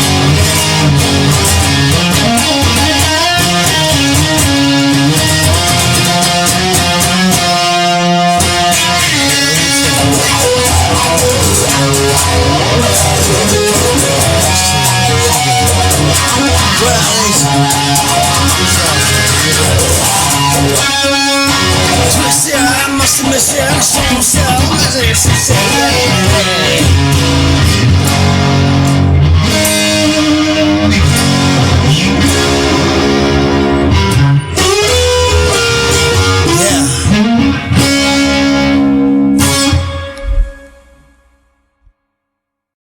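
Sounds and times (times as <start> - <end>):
bass: 0.0 - 41.3
electric guitar: 0.0 - 41.8
steady drum beat: 8.4 - 27.5, 31.0 - 34.8.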